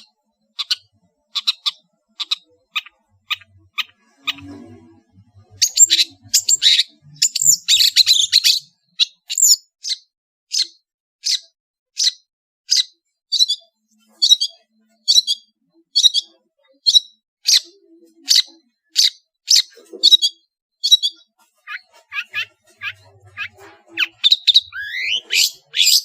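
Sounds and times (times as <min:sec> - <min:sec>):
bird harsh high calls: 0:16.0 - 0:26.0.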